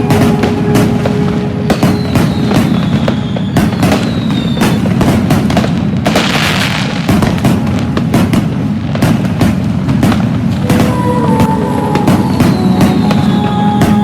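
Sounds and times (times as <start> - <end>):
falling whistle: 0.0 - 5.0, 10.6 - 14.0
fireworks bangs: 0.0 - 14.0.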